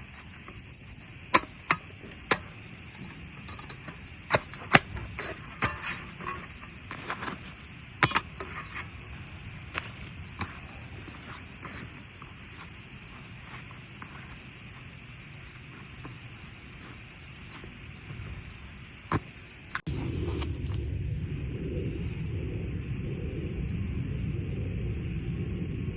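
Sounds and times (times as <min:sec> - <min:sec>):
crickets chirring: 0:00.0 - 0:25.9
low rumble: 0:19.9 - 0:25.9.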